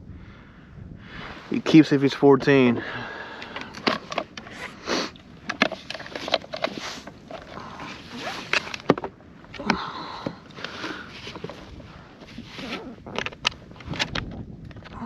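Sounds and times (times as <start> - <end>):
handling knocks and clicks: 3.4 - 4.5, 5.4 - 15.0.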